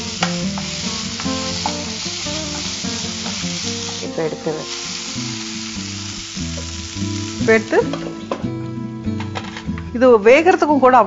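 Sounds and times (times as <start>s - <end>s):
vegetables sizzling in hot oil: 0.0s - 8.3s.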